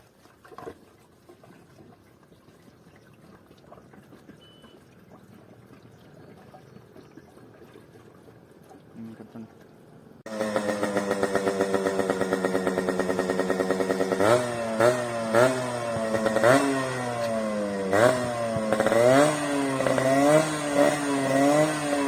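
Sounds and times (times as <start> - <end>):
motorcycle engine idling and revving: 10.3 - 22.0.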